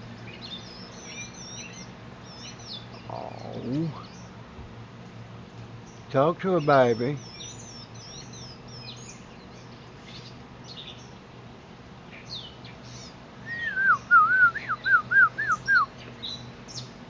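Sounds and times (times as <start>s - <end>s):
small birds chirping faintly: 0.0s - 17.0s
person whistling: 13.5s - 15.6s.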